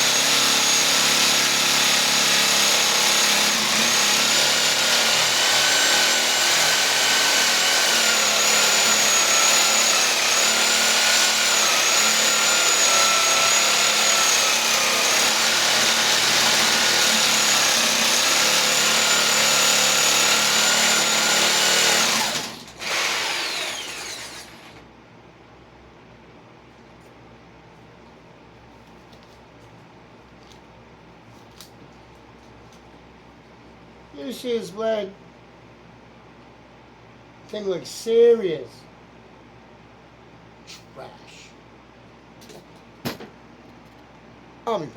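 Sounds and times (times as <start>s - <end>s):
reciprocating saw cutting wood: 0.0s - 24.8s.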